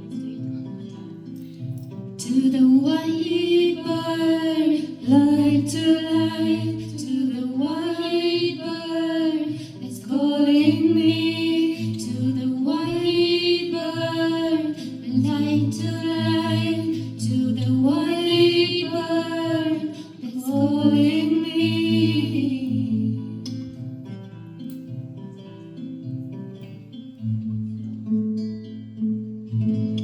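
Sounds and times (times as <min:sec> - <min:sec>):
women singing a cappella: 0:02.2 - 0:23.6.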